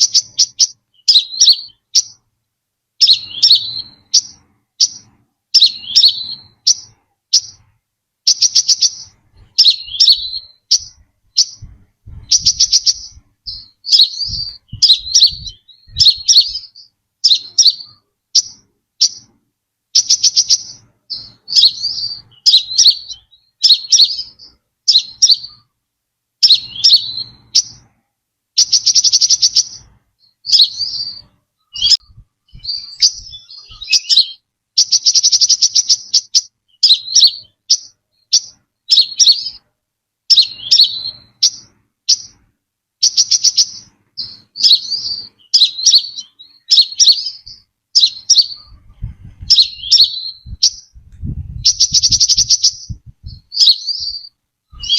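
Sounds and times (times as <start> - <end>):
bird chirping and trilling: 0.0 - 2.3, 3.0 - 25.7, 26.4 - 27.9, 28.6 - 39.7, 40.3 - 54.9.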